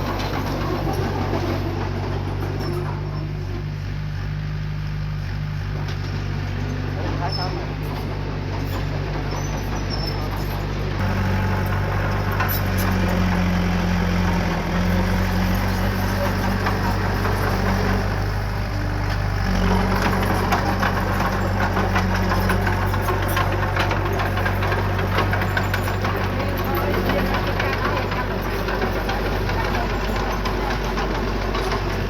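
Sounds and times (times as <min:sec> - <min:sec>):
diesel machinery engine under load: 0:00.0 - 0:32.0.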